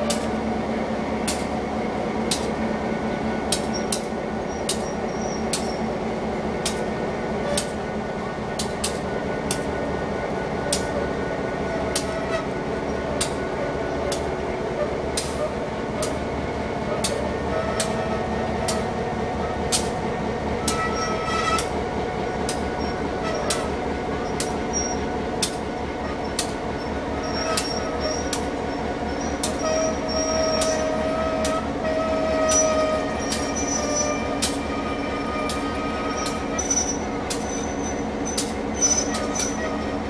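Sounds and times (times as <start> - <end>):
train rumble: 0.0 - 40.0
train wheels squealing: 3.6 - 6.0, 11.8 - 13.1, 20.6 - 21.8, 22.5 - 25.1, 26.0 - 40.0.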